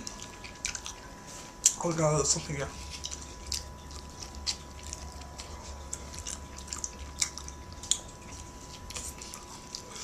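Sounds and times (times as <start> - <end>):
electrical hum: 0.0 - 10.0
person chewing food: 0.0 - 10.0
wet mouth clicks and smacks: 5.9 - 8.1.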